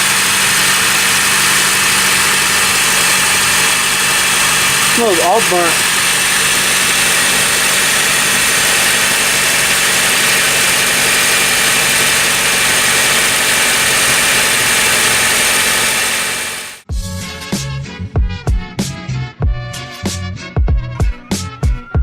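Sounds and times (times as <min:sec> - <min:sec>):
car engine idling: 0:00.0 - 0:16.8.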